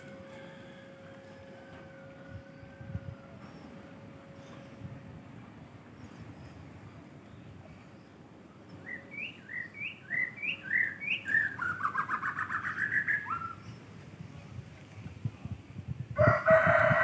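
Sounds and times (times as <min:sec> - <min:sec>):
songbird whistling and trilling: 0:08.8 - 0:13.8.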